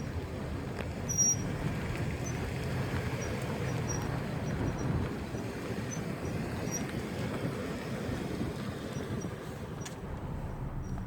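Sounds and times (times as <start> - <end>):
vehicle road rumble: 0.0 - 11.0
high-pitched brake squeaks: 1.1 - 1.5, 5.9 - 6.9.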